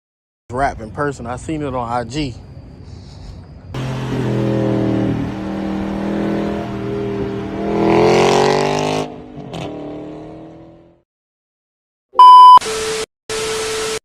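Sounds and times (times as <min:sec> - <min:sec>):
car engine revving: 0:03.8 - 0:11.0
electronic tone: 0:12.2 - 0:12.8.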